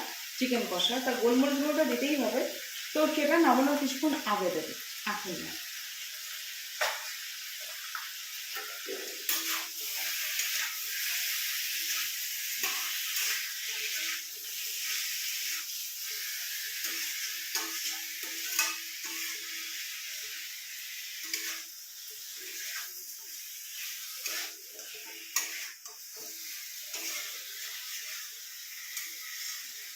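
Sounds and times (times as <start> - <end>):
chicken sizzling in hot oil: 0.0 - 29.9
spatula scraping a pan: 6.9 - 29.9.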